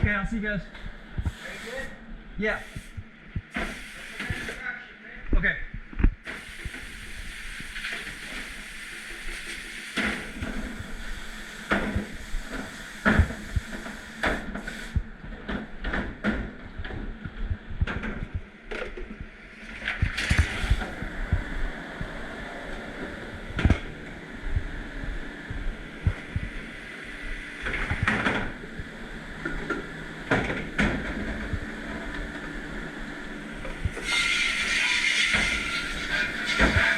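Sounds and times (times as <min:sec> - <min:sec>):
running water hiss: 0:01.3 - 0:04.6, 0:06.3 - 0:15.0, 0:33.9 - 0:36.9
dishes and racks clattering: 0:34.0 - 0:36.9.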